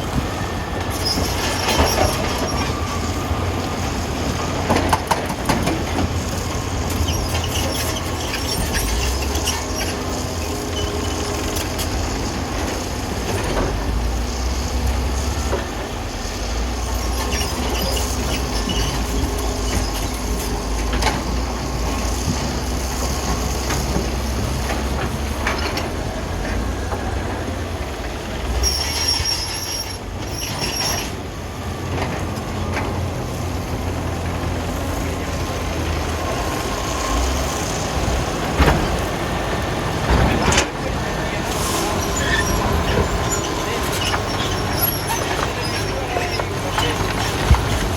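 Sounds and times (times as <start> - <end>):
diesel engine rumbling: 0.0 - 47.9
high-pitched squeal: 6.2 - 12.9, 16.3 - 20.9, 41.2 - 47.9.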